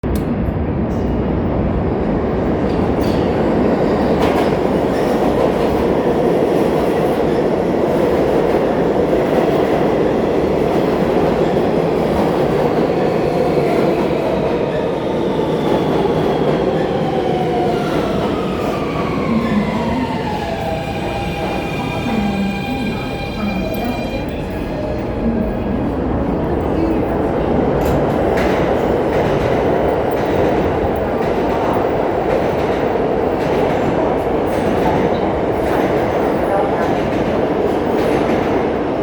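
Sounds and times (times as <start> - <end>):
train wheels rumbling on rail: 0.1 - 39.0.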